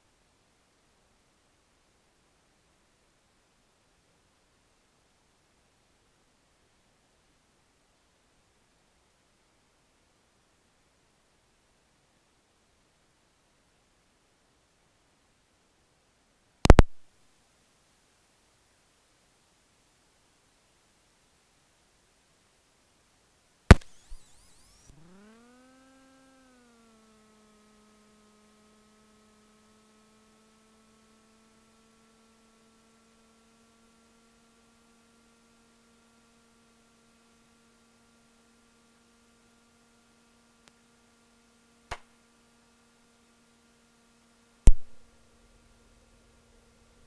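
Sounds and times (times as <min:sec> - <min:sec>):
sharp click: 0:16.7 - 0:17.0, 0:23.7 - 0:25.0, 0:41.9 - 0:42.1, 0:44.7 - 0:45.0
electrical whine: 0:23.7 - 0:33.2.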